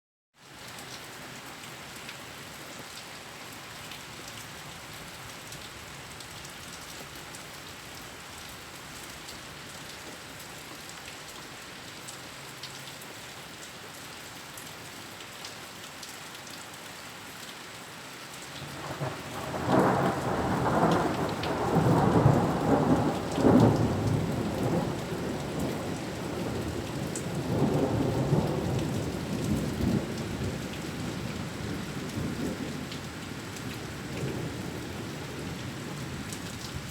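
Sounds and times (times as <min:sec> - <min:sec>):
steady rain falling: 0:00.4 - 0:36.9
thunder rumbling: 0:18.8 - 0:32.8.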